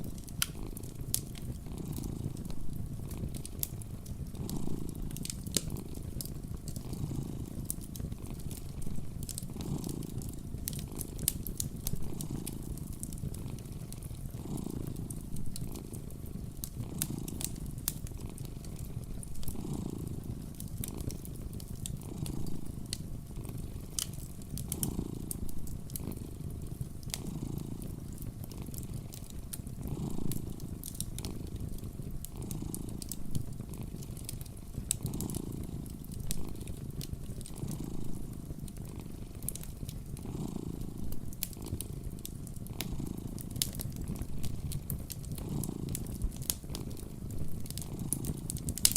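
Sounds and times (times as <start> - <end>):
cat purring: 0.0 - 48.9
wood fire crackling: 0.0 - 48.9.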